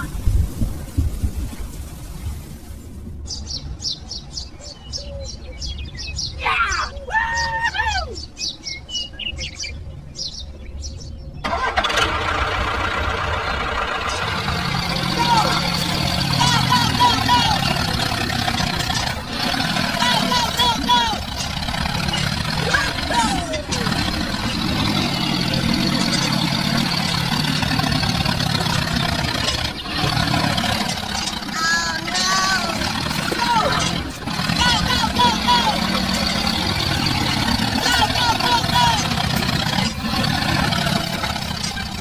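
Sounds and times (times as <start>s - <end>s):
small engine running: 11.4s - 42.0s.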